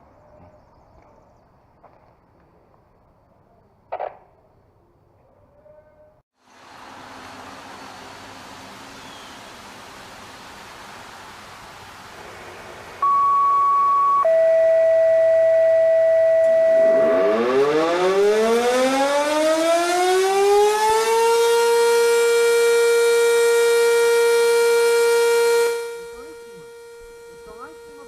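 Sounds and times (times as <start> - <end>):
air-raid siren wailing: 13.0 - 28.0.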